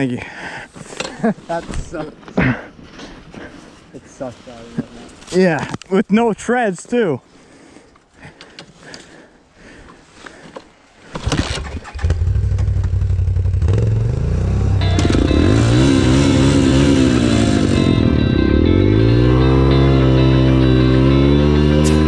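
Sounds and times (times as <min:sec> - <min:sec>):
dirt bike engine running: 0:11.8 - 0:22.0.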